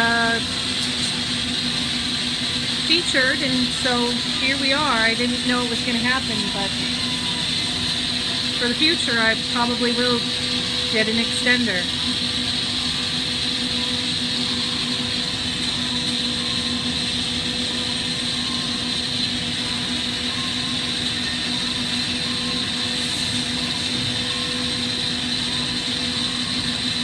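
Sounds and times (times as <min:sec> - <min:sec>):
torch burning with rushing noise: 0:00.0 - 0:27.0.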